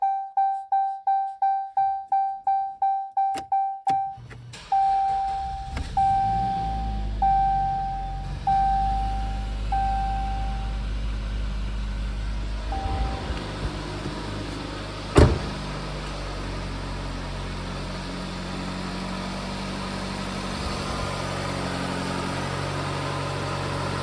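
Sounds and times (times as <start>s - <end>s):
dashboard warning chime beeping: 0.0s - 10.8s, 12.6s - 15.5s
car engine starting and idling: 3.2s - 24.0s.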